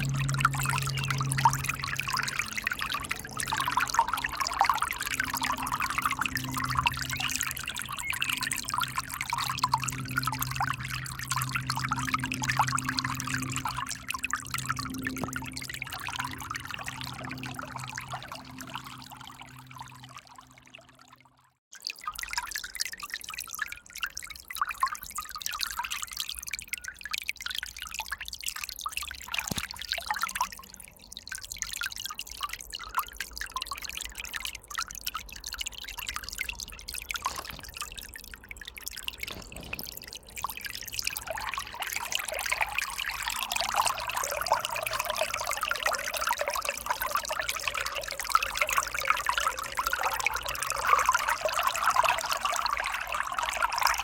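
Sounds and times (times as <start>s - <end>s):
river water running: 0.0s - 20.9s
water drips and splashes: 0.0s - 54.0s.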